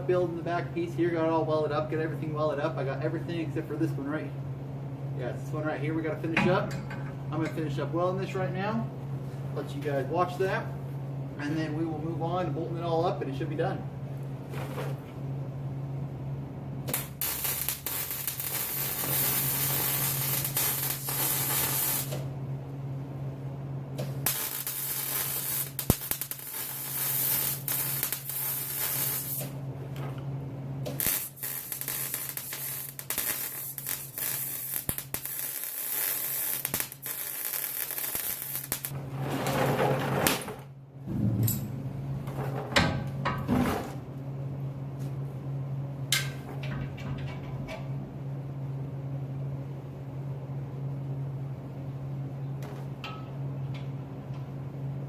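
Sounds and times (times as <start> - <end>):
welder arc crackling and hissing: 16.8 - 22.4, 24.0 - 30.2, 30.8 - 39.0
low hum: 40.8 - 48.8.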